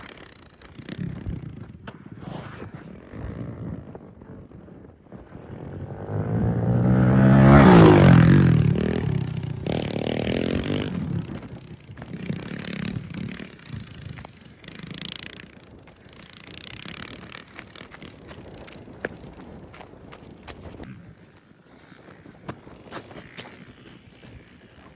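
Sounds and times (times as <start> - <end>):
motorbike engine revving past: 5.3 - 18.8.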